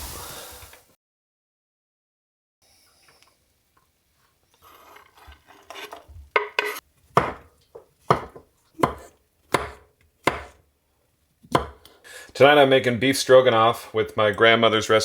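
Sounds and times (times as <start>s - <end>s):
handling and scraping: 4.1s - 9.8s
knife chopping on cutting board: 6.4s - 10.6s, 11.5s - 11.9s.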